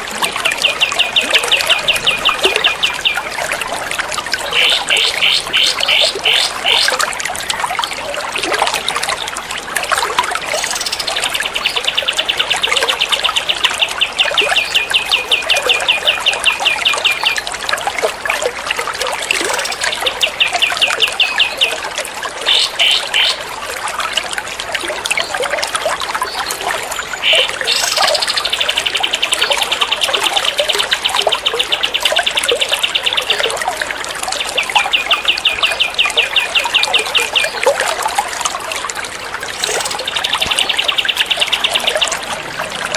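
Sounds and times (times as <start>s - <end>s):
trickling water: 0.0s - 42.9s
songbird rapid trills: 39.5s - 42.9s.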